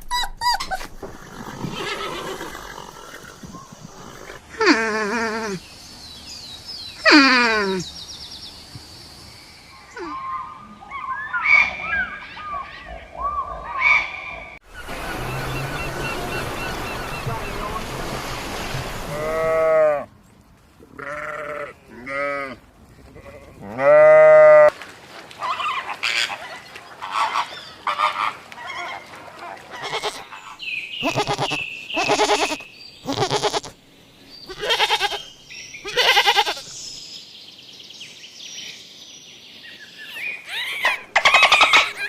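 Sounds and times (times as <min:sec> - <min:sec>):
wavering bleats: 0:20.9 - 0:22.6, 0:31.0 - 0:33.8, 0:34.5 - 0:36.7.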